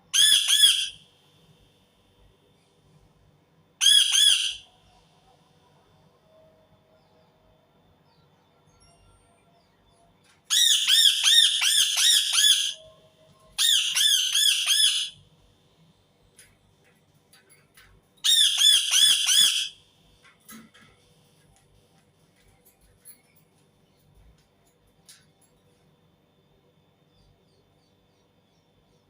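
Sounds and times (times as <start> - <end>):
parakeet squawking: 0.2 - 1.0, 3.8 - 4.6, 10.5 - 12.8, 13.6 - 15.2, 18.3 - 19.7.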